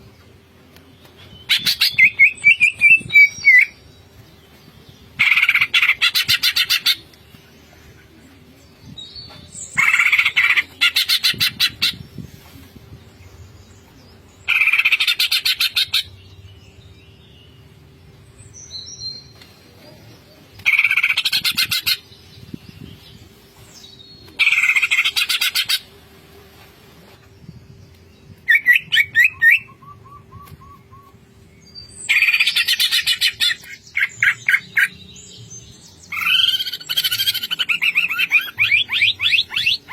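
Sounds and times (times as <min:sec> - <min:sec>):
bird trill: 0:36.1 - 0:39.9.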